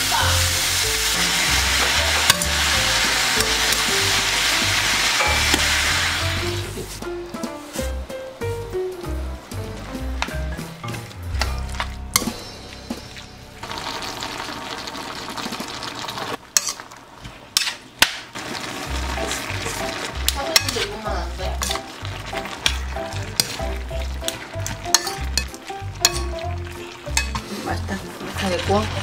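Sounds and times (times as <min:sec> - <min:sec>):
vegetables sizzling in a pan: 0:00.0 - 0:10.7, 0:12.1 - 0:29.0
background music: 0:00.0 - 0:15.3, 0:18.4 - 0:29.0
utensil scraping a pan: 0:01.4 - 0:07.0, 0:19.2 - 0:29.0.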